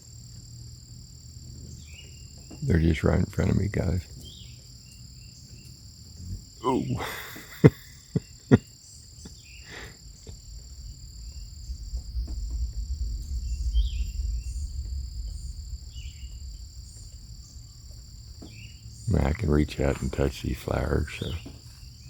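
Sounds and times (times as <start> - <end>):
insects chirring: 0.0 - 22.0
low rumble: 10.1 - 22.0.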